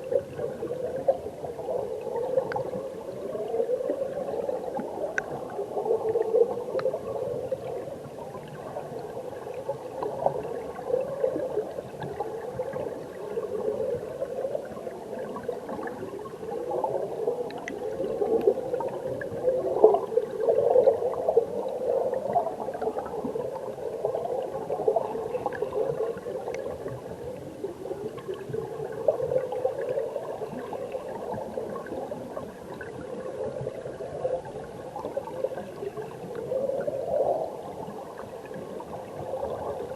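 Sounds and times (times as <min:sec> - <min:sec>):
muffled underwater water rush: 0:00.0 - 0:39.9
faint bubble ticks: 0:02.4 - 0:02.8, 0:04.7 - 0:05.5, 0:06.1 - 0:07.1, 0:17.4 - 0:20.1, 0:24.6 - 0:27.1.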